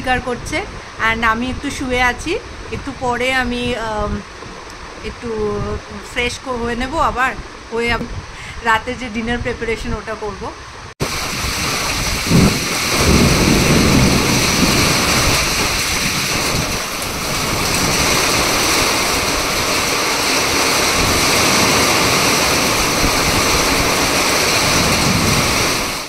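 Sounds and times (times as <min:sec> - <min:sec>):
heavy rain falling: 0:11.0 - 0:26.0
low rumble of thunder: 0:11.0 - 0:26.0.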